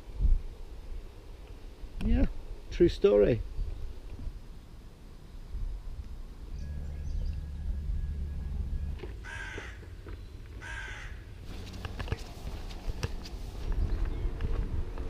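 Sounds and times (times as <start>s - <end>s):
low rumble: 5.6s - 9.4s
crow cawing: 9.2s - 9.9s, 10.6s - 11.3s.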